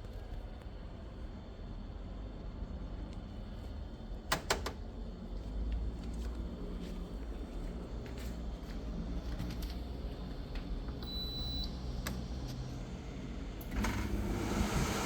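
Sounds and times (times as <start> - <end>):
air conditioner fan rushing air: 0.0 - 15.0.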